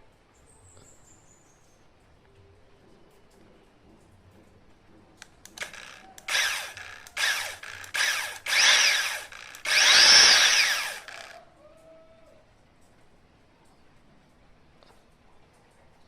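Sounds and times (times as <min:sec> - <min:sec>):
chainsaw engine revving: 0:05.5 - 0:11.4.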